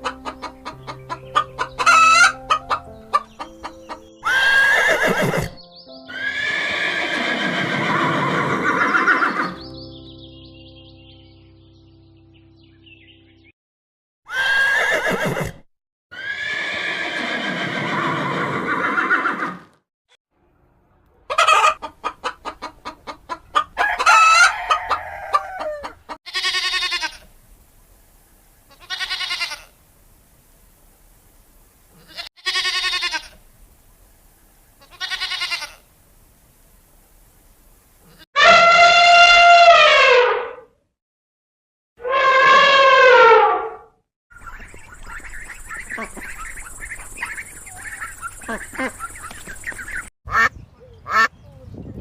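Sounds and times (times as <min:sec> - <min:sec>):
hens clucking: 0:00.0 - 0:05.5, 0:21.2 - 0:26.2, 0:44.4 - 0:50.5
rooster crowing: 0:23.8 - 0:26.0
short pitched calls: 0:44.4 - 0:50.1.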